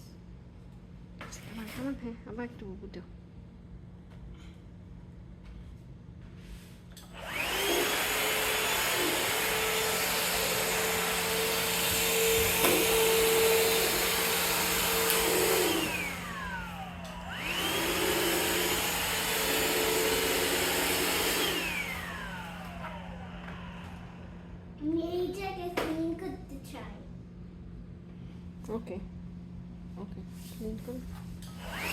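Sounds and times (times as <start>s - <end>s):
vacuum cleaner running: 7.0s - 25.0s, 31.4s - 31.9s.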